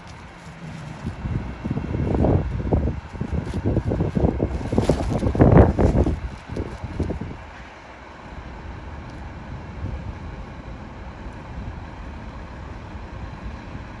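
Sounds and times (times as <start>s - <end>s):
diesel truck engine rumbling: 0.0s - 14.0s.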